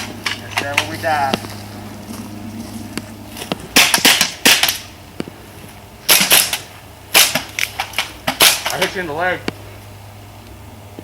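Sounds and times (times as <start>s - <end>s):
airsoft guns firing: 3.7s - 4.9s, 6.1s - 8.9s.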